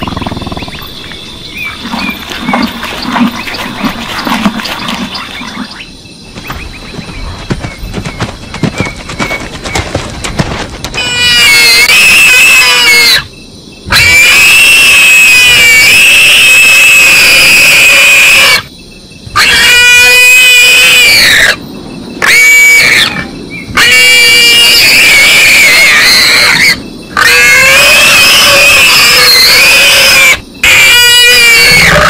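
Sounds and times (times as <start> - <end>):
high-pitched wailing animal calls: 10.9 - 13.3, 13.9 - 18.7, 19.3 - 21.6, 22.2 - 32.0.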